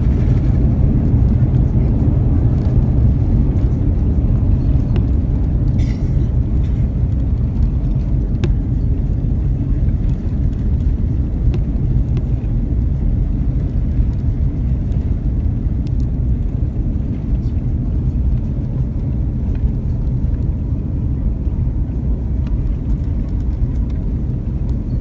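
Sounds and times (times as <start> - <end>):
airplane cabin rumble: 0.0 - 25.0.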